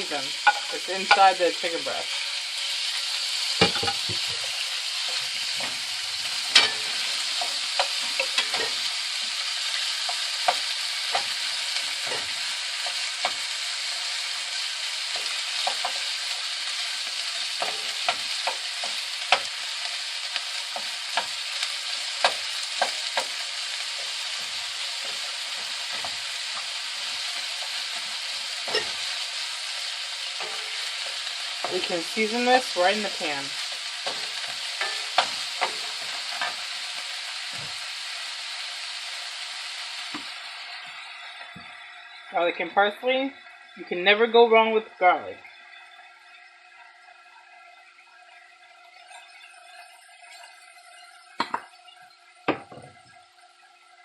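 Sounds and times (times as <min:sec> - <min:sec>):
chicken sizzling in a frying pan: 0:00.0 - 0:54.0
utensil scraping a pan: 0:21.1 - 0:36.7.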